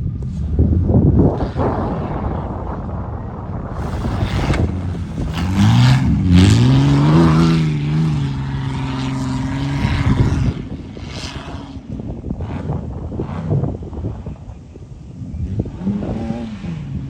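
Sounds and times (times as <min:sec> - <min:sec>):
truck engine revving: 0:03.7 - 0:10.7.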